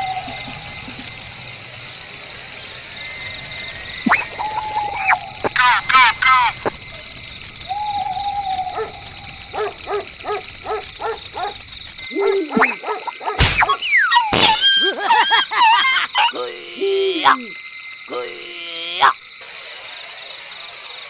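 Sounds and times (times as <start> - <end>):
short pitched animal-like calls: 4.1 - 6.7.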